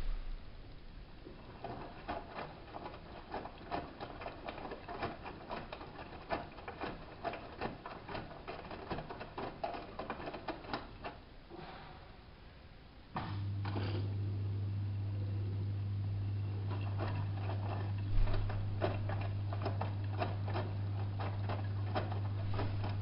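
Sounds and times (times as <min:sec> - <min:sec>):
washing machine laundry tumbling: 0:01.2 - 0:11.3, 0:16.0 - 0:23.0.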